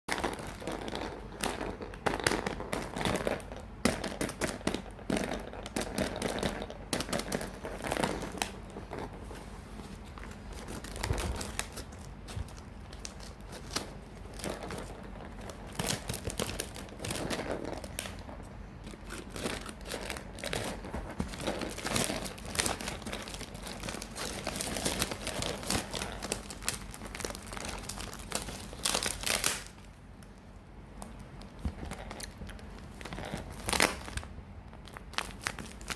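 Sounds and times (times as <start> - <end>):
packets crinkling: 10.0 - 29.8, 31.0 - 35.9.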